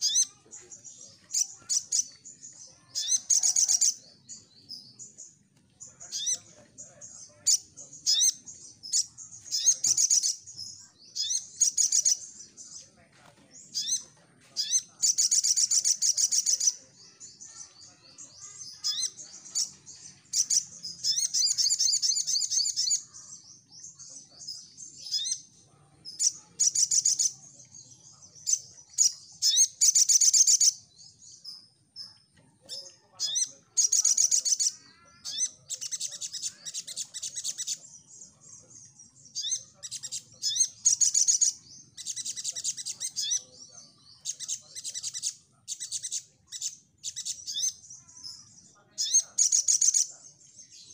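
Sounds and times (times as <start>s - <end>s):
bird singing trilled bursts: 0.0s - 12.8s, 13.5s - 50.9s.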